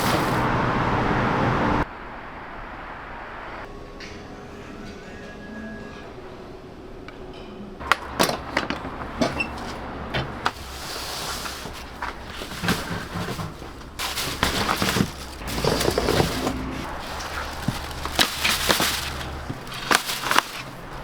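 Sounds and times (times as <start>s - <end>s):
sharp knocks and clatter: 7.8s - 21.0s.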